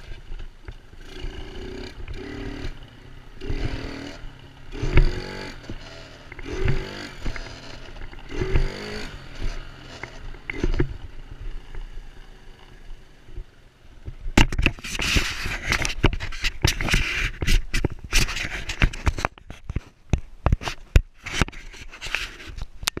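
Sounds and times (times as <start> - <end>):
sharp knocks and scraping rattles: 0.0 - 11.9, 13.3 - 23.0
dirt bike engine revving: 0.9 - 12.6.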